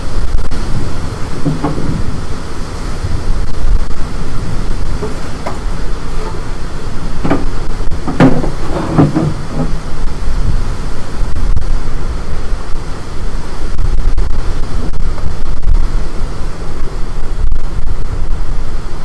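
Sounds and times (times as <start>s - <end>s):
storm wind buffeting microphone: 0.0s - 19.0s.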